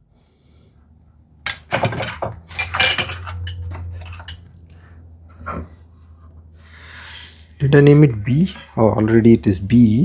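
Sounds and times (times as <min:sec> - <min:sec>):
metal tools clattering on workbench: 0:01.5 - 0:04.4.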